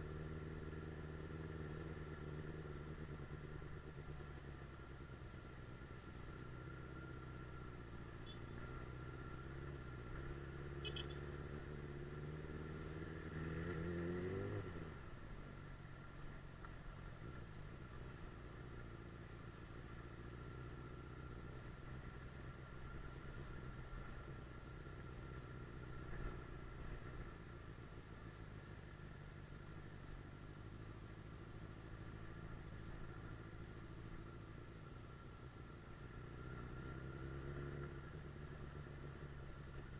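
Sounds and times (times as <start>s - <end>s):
motorcycle engine revving: 6.1s - 15.1s, 30.6s - 39.9s.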